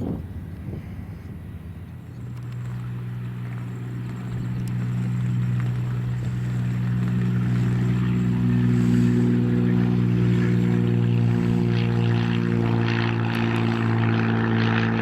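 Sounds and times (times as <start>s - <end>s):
propeller airplane engine drone: 0.0s - 15.0s.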